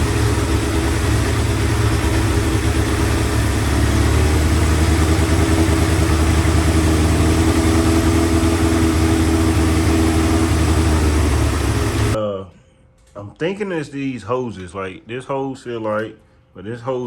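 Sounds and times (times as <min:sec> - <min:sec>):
motorcycle engine idling: 0:00.0 - 0:12.2.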